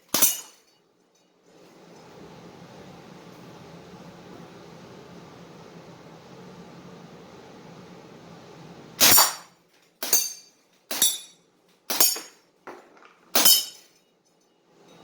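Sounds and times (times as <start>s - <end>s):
metallic ring of target: 0.2s - 0.6s, 10.0s - 12.4s, 13.4s - 13.9s.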